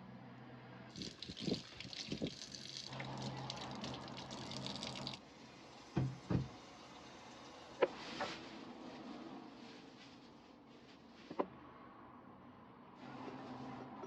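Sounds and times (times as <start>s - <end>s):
kitchen tap running: 0.9s - 5.2s.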